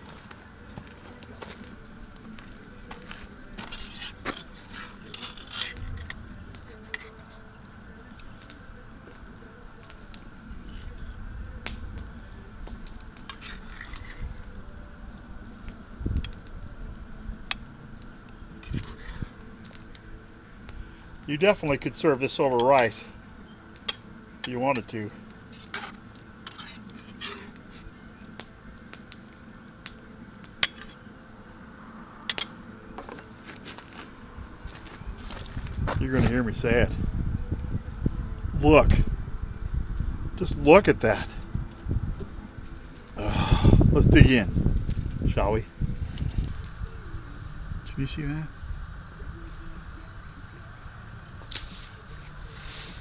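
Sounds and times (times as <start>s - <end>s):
light clicks and crackles: 0.0s - 31.1s, 32.1s - 36.4s
wind rumble on microphone: 5.7s - 21.9s, 34.1s - 53.0s.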